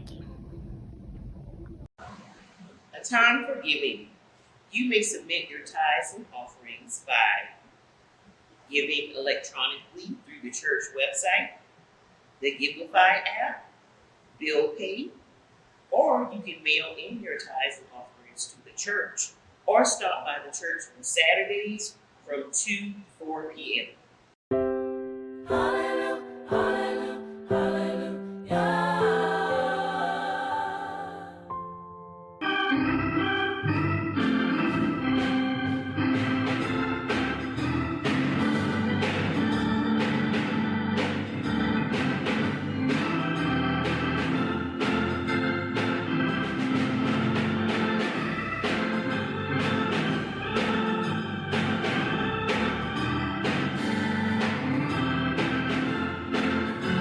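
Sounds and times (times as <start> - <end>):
organ playing chords and melody: 24.5 - 57.0.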